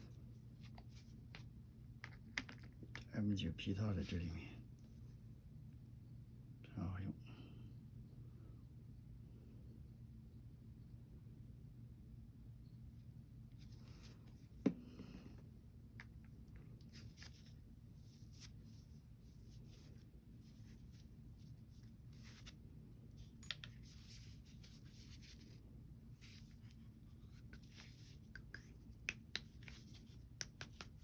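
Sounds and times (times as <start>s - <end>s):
cloth rubbing pistol parts: 16.8s - 31.0s.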